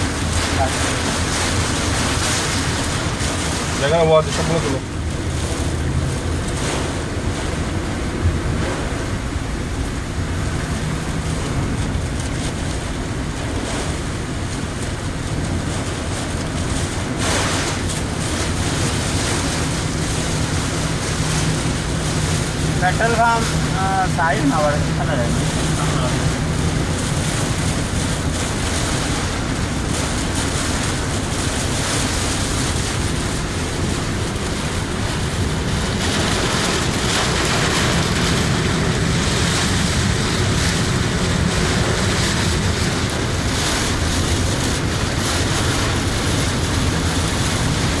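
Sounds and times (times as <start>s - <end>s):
heavy rain on a car: 0.0s - 48.0s
low car rumble: 0.0s - 48.0s.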